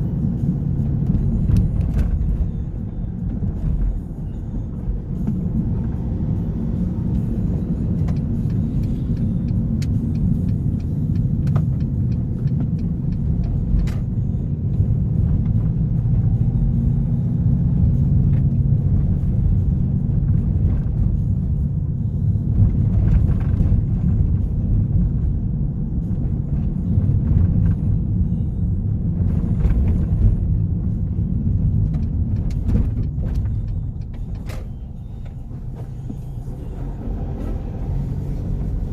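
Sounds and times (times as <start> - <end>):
car engine and exhaust drone: 0.0 - 38.9
road noise: 0.0 - 38.9.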